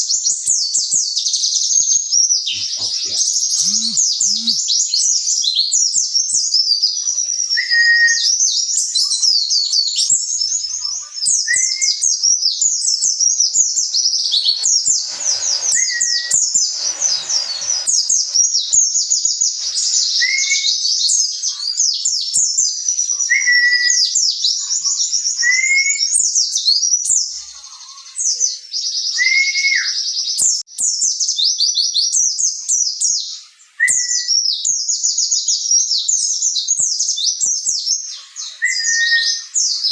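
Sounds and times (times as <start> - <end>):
bird twittering song: 0.1 - 39.9
rustling: 12.9 - 20.9
low whistled note: 13.5 - 20.8.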